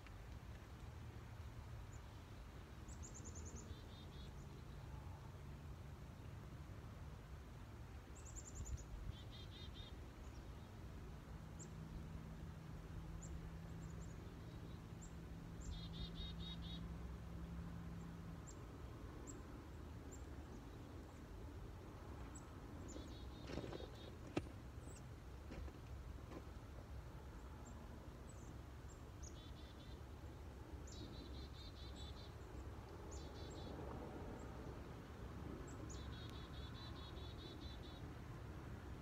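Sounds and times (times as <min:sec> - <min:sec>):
songbirds singing: 0:13.1 - 0:25.7, 0:26.3 - 0:38.2.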